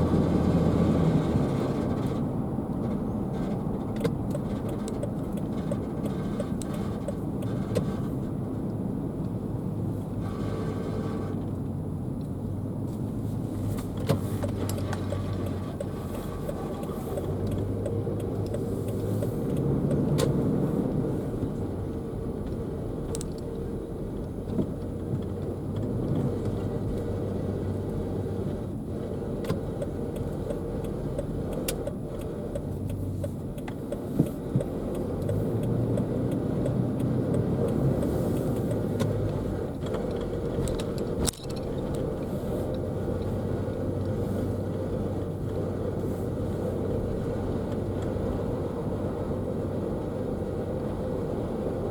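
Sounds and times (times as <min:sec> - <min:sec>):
car road and engine rumble: 0:00.0 - 0:51.9
rattling clicking noise: 0:01.6 - 0:09.4, 0:13.6 - 0:23.6, 0:29.4 - 0:46.1.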